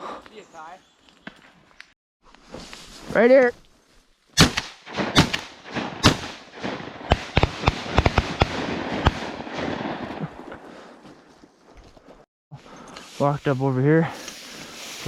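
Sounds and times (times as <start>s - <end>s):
shotgun shots: 4.4s - 10.2s.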